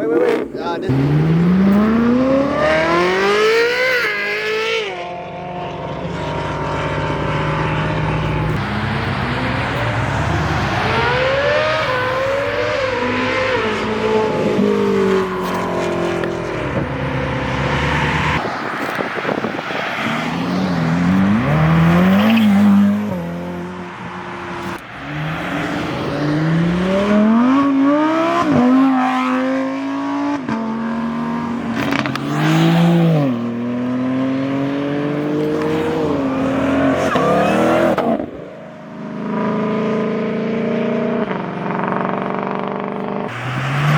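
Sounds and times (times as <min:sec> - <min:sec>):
car engines revving: 0:00.0 - 0:43.9.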